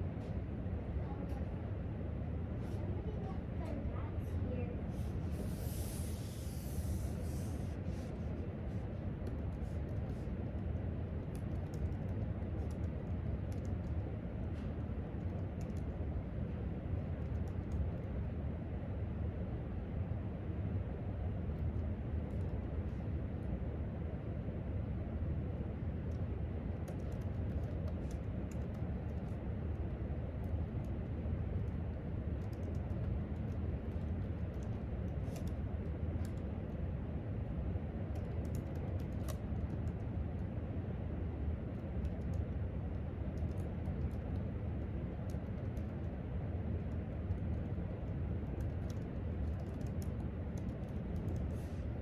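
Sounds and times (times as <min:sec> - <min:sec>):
low room hum: 0:00.0 - 0:52.0
laptop keyboard typing: 0:09.2 - 0:14.1, 0:15.1 - 0:15.9, 0:17.2 - 0:17.9, 0:26.8 - 0:29.4, 0:32.4 - 0:35.6, 0:38.1 - 0:40.1, 0:43.3 - 0:46.2, 0:48.4 - 0:51.8.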